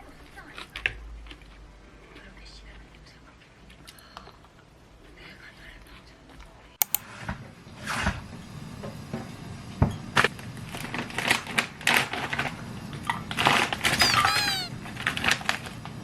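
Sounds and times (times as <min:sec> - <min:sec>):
crunching and chewing food: 0:00.0 - 0:04.1
high squeaky chirps: 0:14.0 - 0:14.7.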